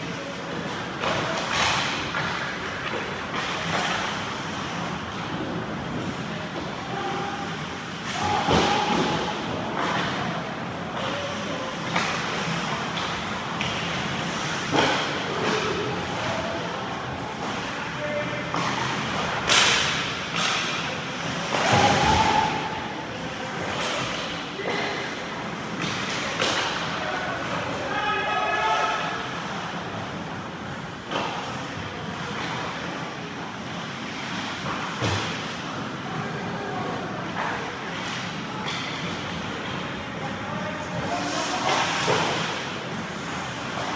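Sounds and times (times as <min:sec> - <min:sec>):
skates and rink hum: 0:00.0 - 0:43.9
sharp knocks of sticks or puck: 0:18.5 - 0:20.8, 0:25.8 - 0:26.9
sharp hockey hits: 0:18.6 - 0:20.8
skates scraping on ice: 0:40.8 - 0:43.9.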